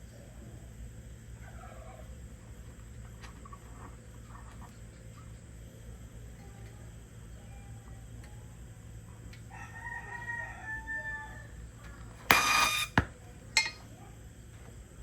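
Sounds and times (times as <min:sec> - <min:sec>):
rooster crowing: 0:09.5 - 0:11.6.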